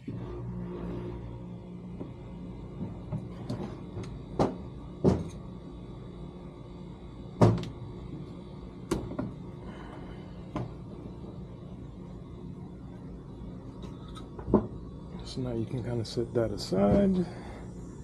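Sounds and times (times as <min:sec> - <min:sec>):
steady low hum: 0:00.0 - 0:18.0
parts and tools knocking on bench: 0:04.4 - 0:05.3, 0:14.4 - 0:14.8.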